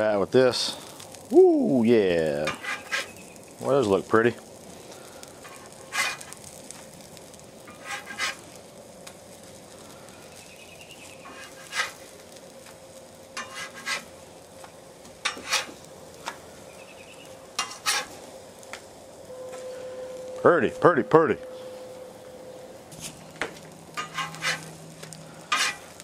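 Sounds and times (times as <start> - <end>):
food sizzling on griddle: 0.0 - 26.0
metal spatula scraping griddle: 2.4 - 3.3, 5.4 - 6.6, 7.7 - 8.6, 11.2 - 12.1, 13.4 - 14.2, 15.2 - 15.8, 17.6 - 18.2, 22.9 - 26.0.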